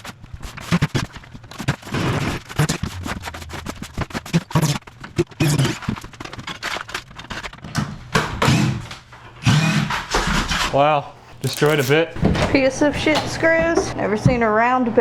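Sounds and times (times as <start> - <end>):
drill bit slipping in screw heads: 11.1 - 13.9.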